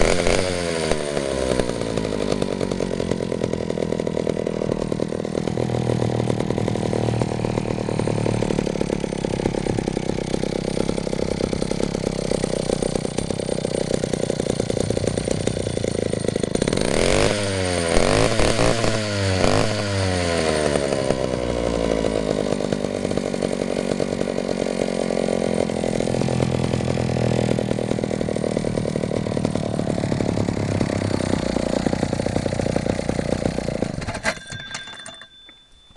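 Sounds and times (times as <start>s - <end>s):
chainsaw engine revving: 0.0s - 34.4s.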